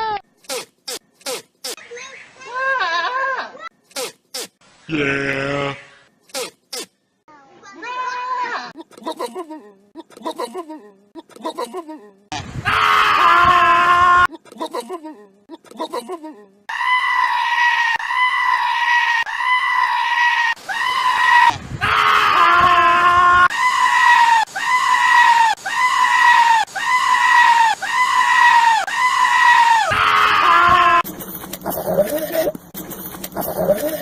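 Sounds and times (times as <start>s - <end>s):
goat screaming: 2.4s - 3.7s, 7.8s - 8.8s, 16.7s - 31.0s, 31.6s - 32.5s, 33.4s - 34.0s.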